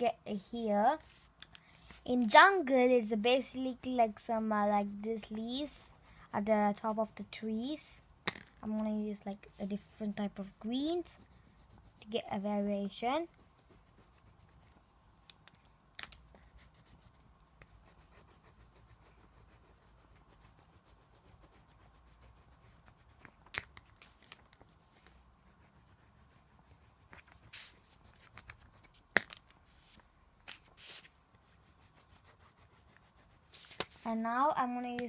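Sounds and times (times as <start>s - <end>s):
crayon scratching on paper: 3.5s - 7.3s, 9.5s - 14.8s, 16.3s - 23.4s, 24.5s - 29.0s, 30.7s - 34.6s.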